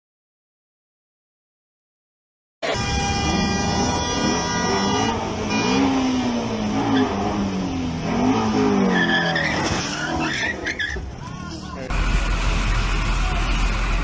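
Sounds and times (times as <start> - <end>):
car engine revving: 2.6 - 11.2, 11.9 - 14.0
tyres skidding and squealing: 2.6 - 14.0.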